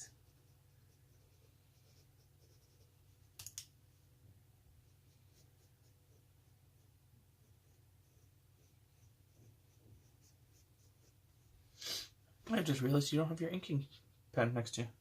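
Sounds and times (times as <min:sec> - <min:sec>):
pencil strokes on paper: 0:00.0 - 0:12.6
sharp clicks: 0:03.4 - 0:03.7.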